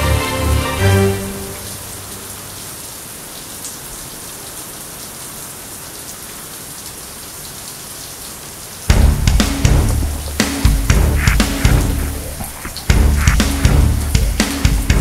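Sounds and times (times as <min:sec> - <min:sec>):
steady rain falling: 0:00.0 - 0:15.0
loud music with drum hits: 0:08.9 - 0:15.0.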